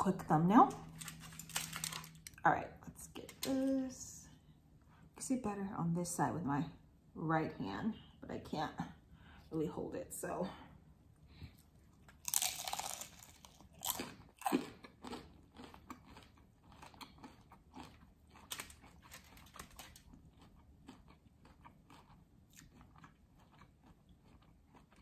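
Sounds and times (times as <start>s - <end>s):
crunching crispy taco: 0.9s - 2.4s, 12.0s - 25.0s
crunchy chewing: 11.5s - 25.0s.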